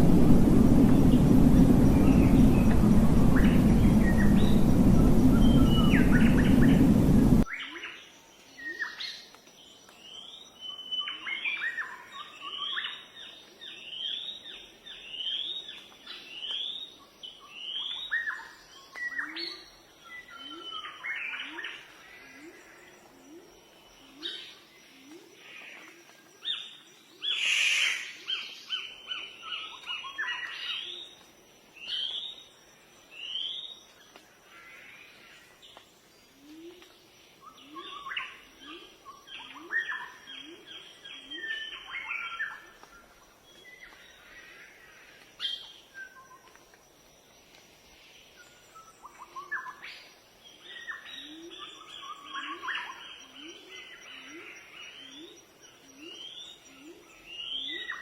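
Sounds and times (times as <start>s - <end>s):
low bird call in rising notes: 0.0s - 7.4s
songbirds chirping and trilling: 0.7s - 46.6s.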